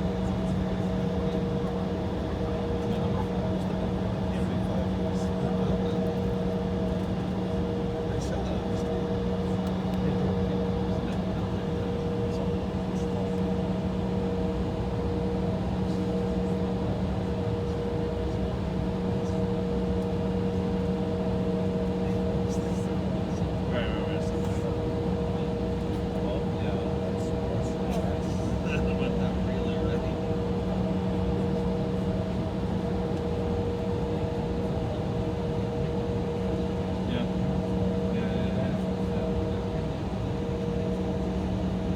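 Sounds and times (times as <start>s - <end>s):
aircraft cabin drone: 0.0s - 41.9s
airliner cabin hum: 23.9s - 41.9s.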